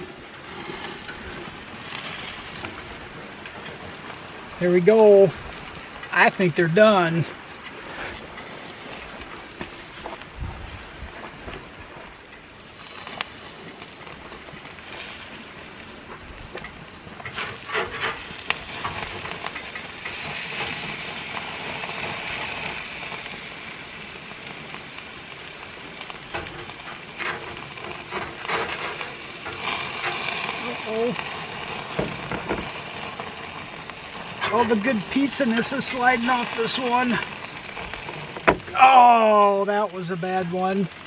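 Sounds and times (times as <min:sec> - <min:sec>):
burgers sizzling on a grill: 0:00.0 - 0:41.0
sharp clicks and scrapes: 0:16.5 - 0:20.8, 0:26.3 - 0:30.5.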